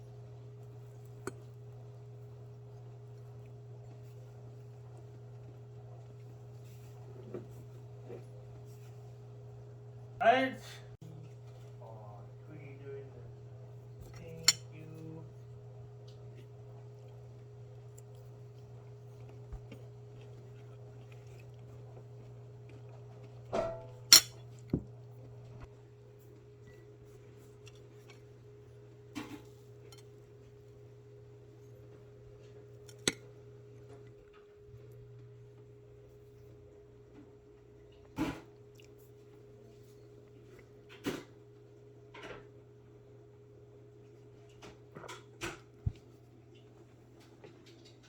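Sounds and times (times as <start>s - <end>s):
steady low hum: 0.0s - 44.6s
tableware clattering: 23.6s - 24.4s.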